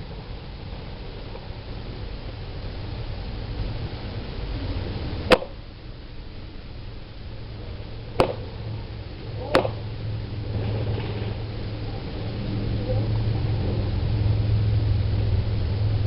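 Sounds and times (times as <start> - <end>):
low rumble: 0.0 - 16.0
airsoft gun shots: 5.3 - 5.6, 8.2 - 8.5.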